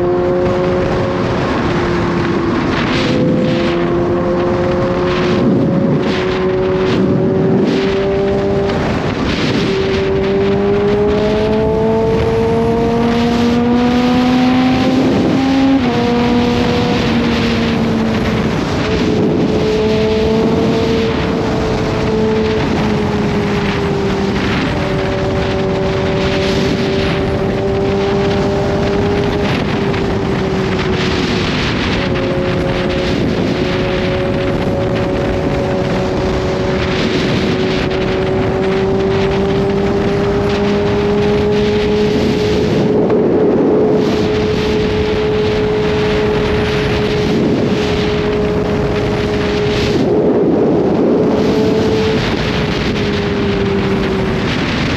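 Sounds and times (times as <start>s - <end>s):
motorcycle engine cruising: 0.0s - 54.9s
wind buffeting microphone: 0.0s - 54.9s.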